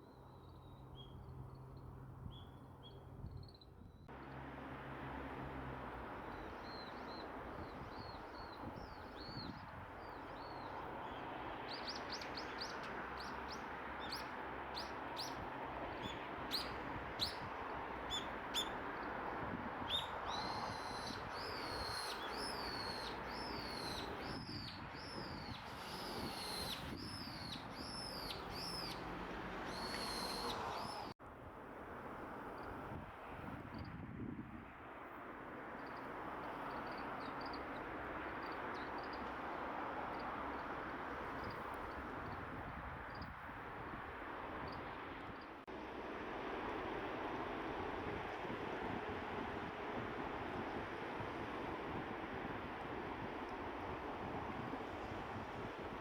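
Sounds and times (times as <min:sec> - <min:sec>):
downward-curving bird chirps: 0:19.9 - 0:29.1, 0:29.7 - 0:31.1
songbirds chirping: 0:19.9 - 0:31.2.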